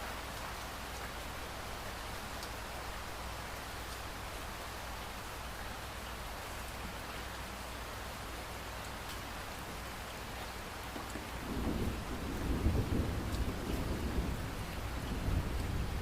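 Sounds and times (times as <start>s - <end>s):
steady rain falling: 0.0s - 16.0s
low rumble of thunder: 11.2s - 16.0s.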